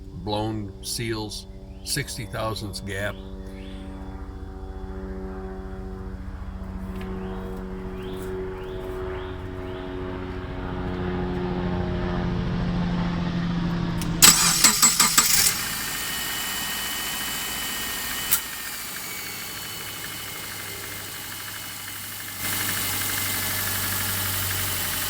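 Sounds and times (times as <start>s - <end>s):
low droning hum: 0.0s - 14.3s
car engine cranking and idling: 5.9s - 25.0s
light engine knock: 18.4s - 25.0s.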